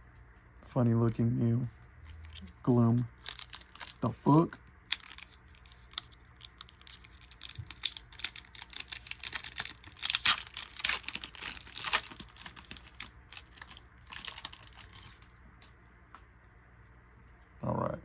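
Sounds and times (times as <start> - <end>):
cards being shuffled: 2.0 - 4.1, 4.9 - 15.3.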